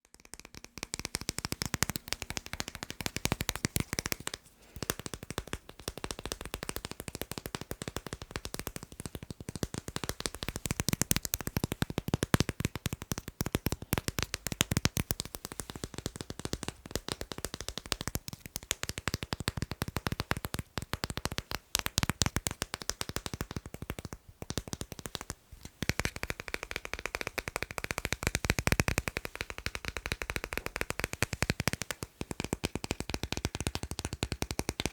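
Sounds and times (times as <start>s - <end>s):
rapid tapping on magnets: 0.0s - 34.9s.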